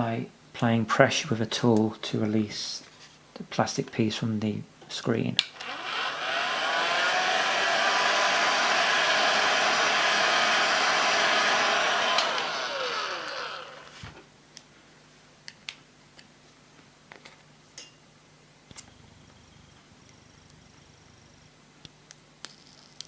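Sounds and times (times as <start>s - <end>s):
fan winding down whine: 5.6s - 14.2s, 18.7s - 21.7s
hot-air blower running: 5.6s - 14.2s.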